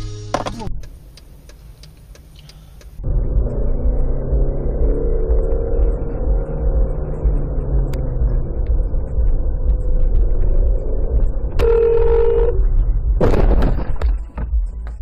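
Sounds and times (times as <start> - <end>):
vehicle rumbling: 0.0 - 15.0
horn-like tone: 11.6 - 12.7.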